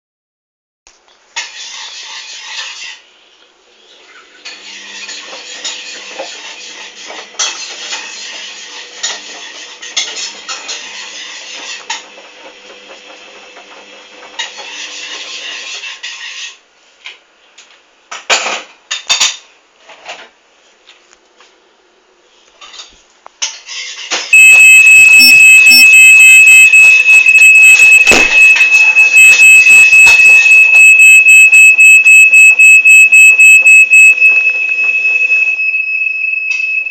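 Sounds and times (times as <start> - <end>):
steady high-pitched tone: 24.3 - 36.9.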